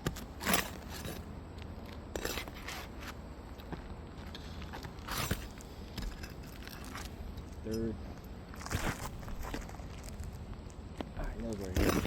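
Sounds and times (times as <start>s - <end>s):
pry bar scraping shingles: 0.0s - 3.2s, 4.3s - 7.9s, 11.5s - 12.0s.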